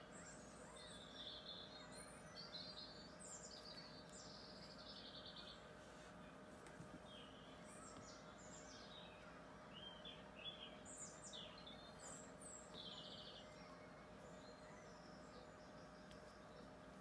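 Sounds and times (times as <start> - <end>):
faint steady background hum: 0.0 - 17.0
birds chirping and trilling: 7.0 - 16.9.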